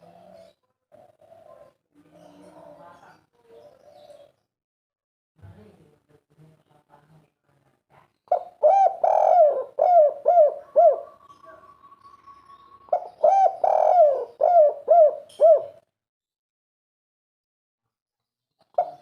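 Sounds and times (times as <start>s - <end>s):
dove cooing: 0.0s - 4.4s, 8.3s - 15.8s, 18.8s - 19.0s.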